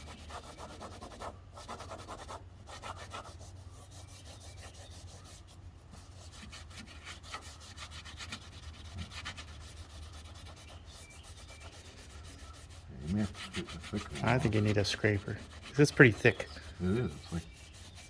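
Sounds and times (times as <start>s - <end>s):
hand scrubbing and wiping: 0.0s - 18.0s
steady low hum: 8.4s - 18.0s.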